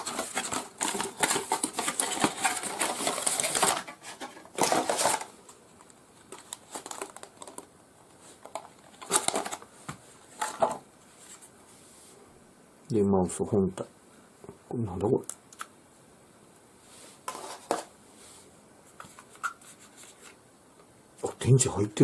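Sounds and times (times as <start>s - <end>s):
plastic and paper rustling: 0.0s - 11.5s, 17.1s - 17.9s.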